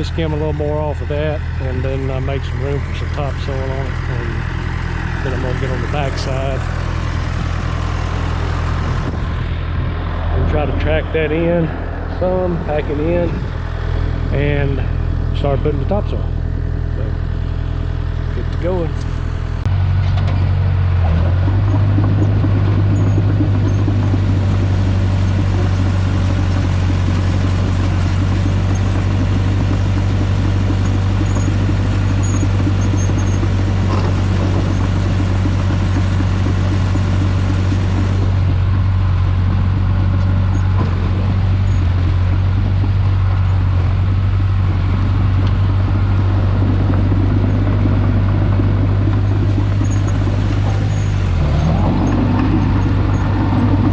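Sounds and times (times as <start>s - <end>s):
earthmoving machine engine drone: 0.0s - 53.9s.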